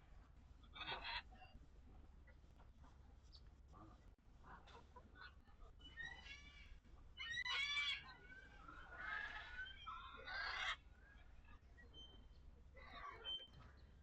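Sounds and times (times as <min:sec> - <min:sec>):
fowl harsh rapid calls: 0:00.8 - 0:01.3, 0:10.2 - 0:10.8.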